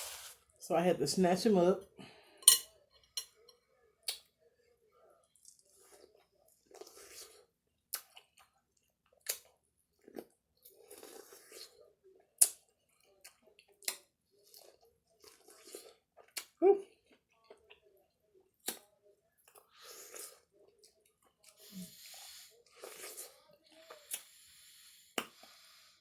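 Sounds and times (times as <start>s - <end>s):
person chewing food: 5.1s - 25.9s.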